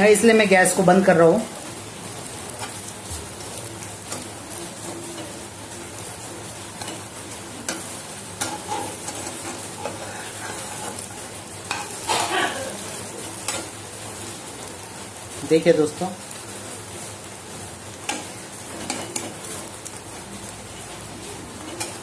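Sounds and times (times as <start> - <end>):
omelette sizzling in a frying pan: 0.0 - 22.0
metal spatula scraping a pan: 6.7 - 13.8, 18.1 - 19.7, 20.7 - 22.0.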